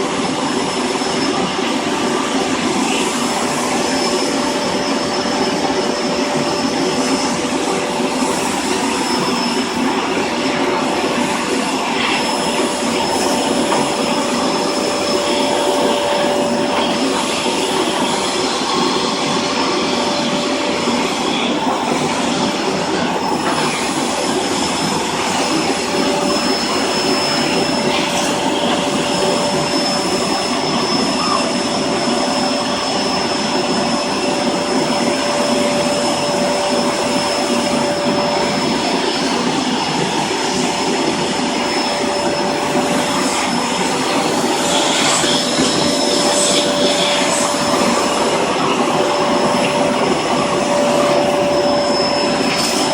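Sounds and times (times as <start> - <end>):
vacuum cleaner running: 0.0 - 52.9.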